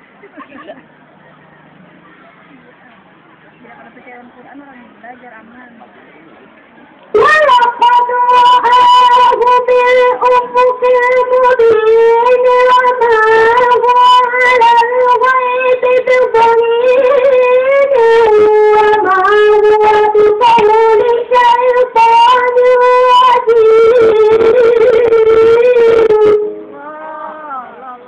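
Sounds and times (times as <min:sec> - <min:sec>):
man's high voice reciting melodically: 0:07.1 - 0:28.0.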